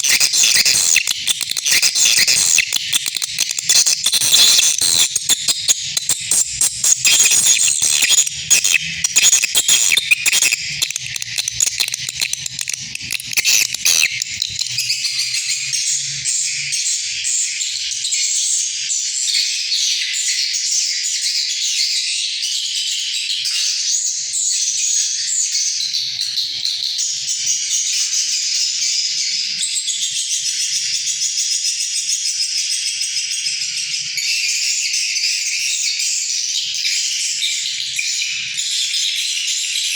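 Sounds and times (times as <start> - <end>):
swiftlets twittering: 0.0 - 15.6.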